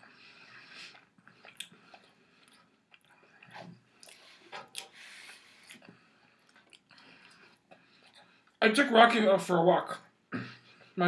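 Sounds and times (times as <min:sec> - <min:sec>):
faint chewing and biting: 0:00.0 - 0:08.6.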